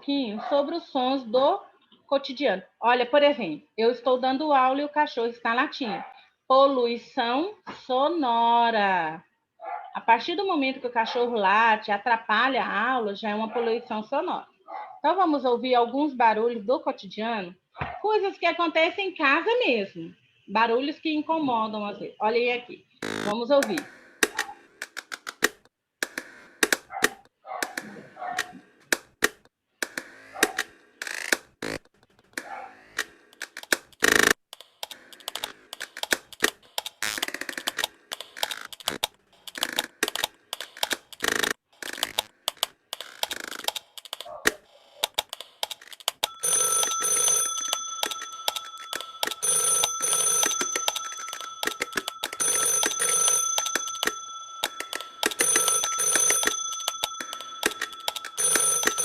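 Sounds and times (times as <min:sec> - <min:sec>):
household clicks and taps: 0:23.6 - 0:59.0
electronic ringer ringing: 0:46.2 - 0:59.0.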